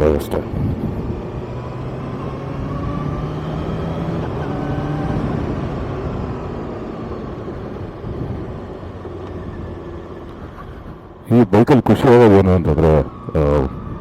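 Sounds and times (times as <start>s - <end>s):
wind noise: 0.4s - 11.1s.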